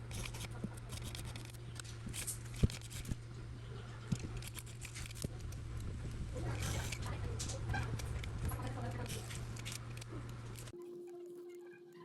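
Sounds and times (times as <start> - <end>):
hand tool scraping adhesive: 0.1 - 3.2, 4.2 - 5.5.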